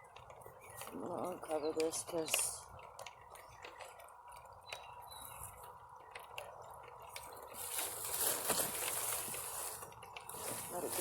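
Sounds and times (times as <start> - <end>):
rain dripping: 0.0 - 10.7
rustling hiss: 6.6 - 11.0.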